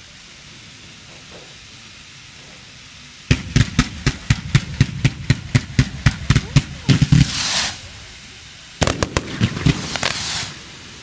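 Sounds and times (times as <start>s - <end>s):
hiss of fireworks fountains: 0.0s - 11.0s
fireworks battery firing shots: 3.2s - 11.0s.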